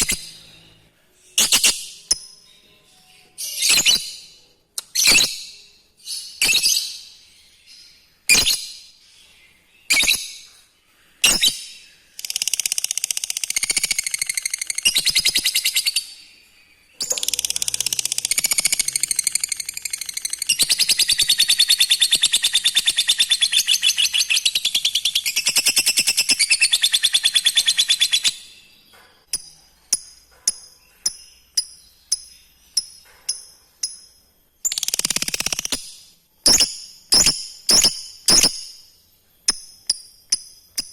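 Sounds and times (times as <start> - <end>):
lovebird calling and chattering: 0.0 - 0.5, 3.4 - 4.2, 9.9 - 10.4, 11.2 - 16.1, 17.0 - 28.6, 29.3 - 38.8.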